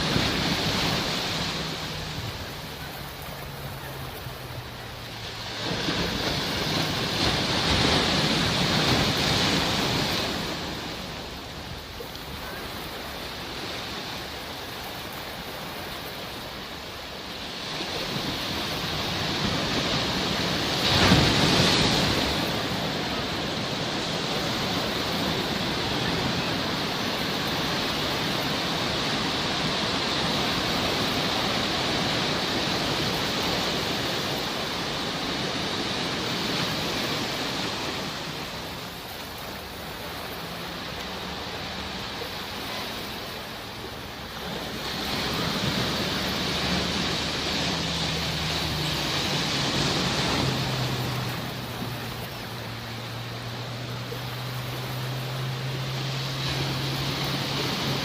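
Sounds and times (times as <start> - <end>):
sea waves breaking: 0.0 - 58.0.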